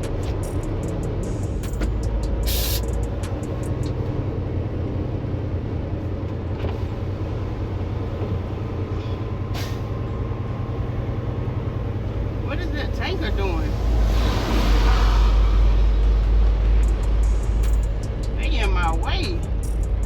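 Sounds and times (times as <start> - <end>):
truck diesel engine running: 0.0 - 20.0
air brake hiss: 2.5 - 2.9, 9.0 - 10.0.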